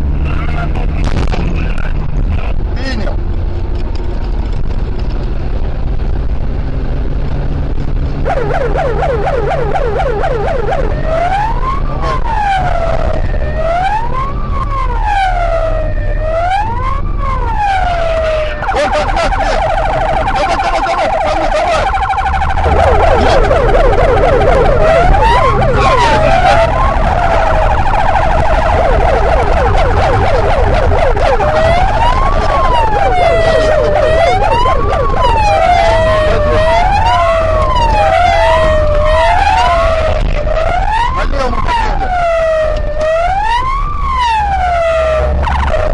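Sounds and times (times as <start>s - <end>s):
car engine droning: 0.0s - 45.9s
police siren wailing: 8.1s - 45.9s
low rumble: 22.0s - 41.1s.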